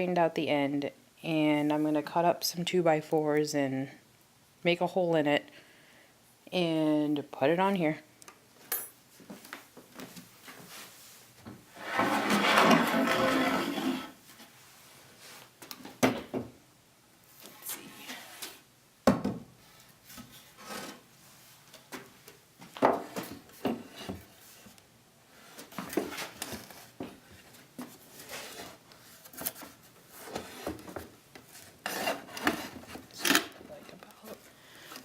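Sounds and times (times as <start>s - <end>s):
wood scraping on work surface: 11.8s - 14.2s.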